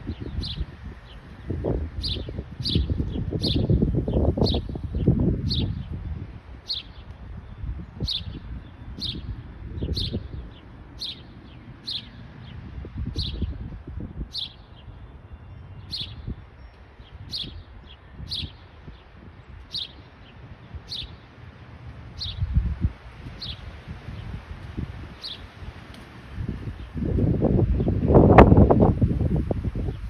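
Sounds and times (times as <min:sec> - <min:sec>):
wind rumble on microphone: 0:00.0 - 0:30.0
small bird chirping: 0:06.7 - 0:13.6, 0:14.3 - 0:18.7, 0:19.7 - 0:21.2.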